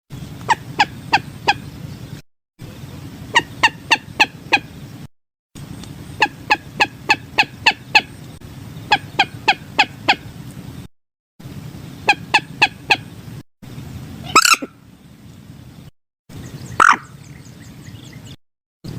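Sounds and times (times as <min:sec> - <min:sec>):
moorhen calls: 0:00.2 - 0:01.8, 0:03.3 - 0:04.8, 0:06.0 - 0:08.2, 0:08.8 - 0:10.3, 0:12.0 - 0:13.1, 0:14.2 - 0:14.8, 0:16.5 - 0:17.3.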